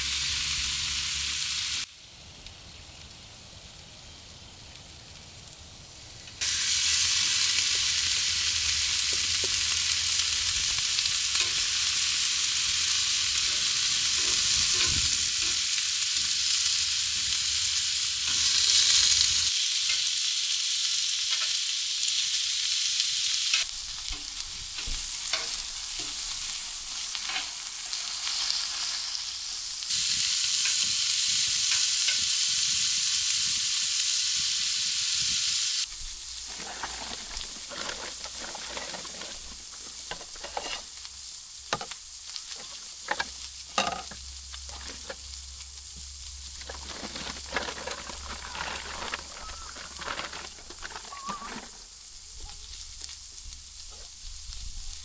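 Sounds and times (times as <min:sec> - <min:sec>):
food sizzling in a pan: 0:00.0 - 0:55.0
stirring clicks and scrapes: 0:13.4 - 0:15.6, 0:35.9 - 0:41.0, 0:41.7 - 0:45.3, 0:46.5 - 0:52.0.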